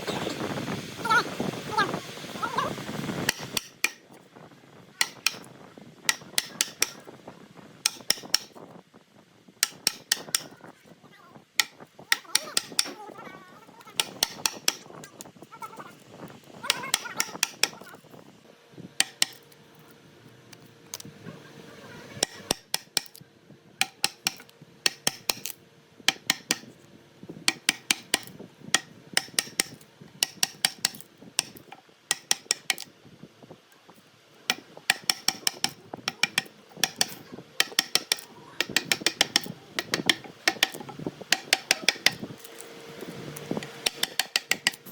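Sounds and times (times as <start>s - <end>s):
hammer tapping: 3.3s - 4.1s, 5.0s - 5.5s, 6.1s - 7.0s, 7.8s - 8.6s, 9.6s - 10.6s, 11.6s - 13.0s, 13.9s - 14.9s, 16.7s - 17.9s, 19.0s - 19.4s, 22.2s - 23.2s, 23.8s - 26.7s, 27.5s - 32.9s, 34.5s - 44.9s.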